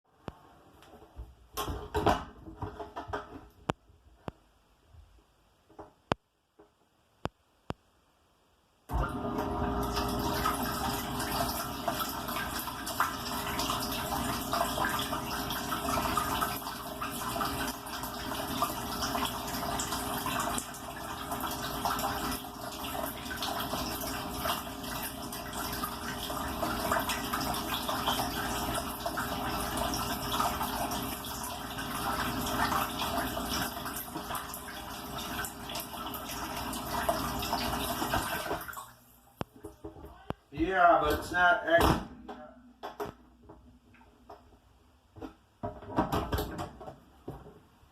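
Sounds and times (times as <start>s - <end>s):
water splashing in dishwasher: 8.9s - 40.0s
low hum of dishwasher: 8.9s - 40.4s.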